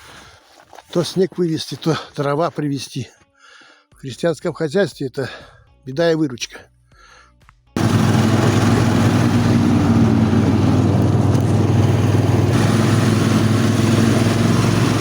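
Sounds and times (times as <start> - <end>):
snowmobile engine running: 7.8 - 15.0.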